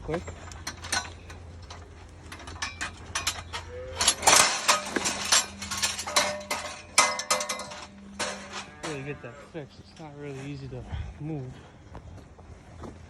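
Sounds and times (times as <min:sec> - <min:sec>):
metal headlocks clicking and clanging: 0:00.1 - 0:09.2.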